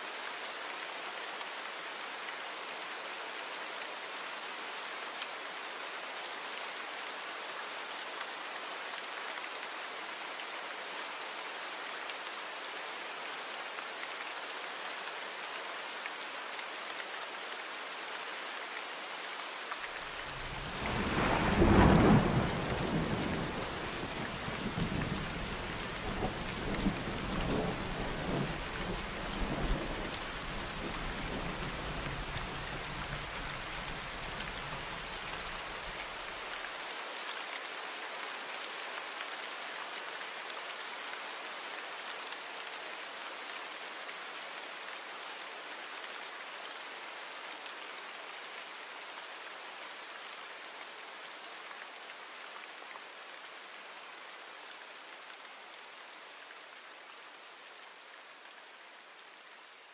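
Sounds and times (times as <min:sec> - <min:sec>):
rain hiss: 0:00.0 - 0:59.9
thunder rumbling: 0:20.6 - 0:23.7.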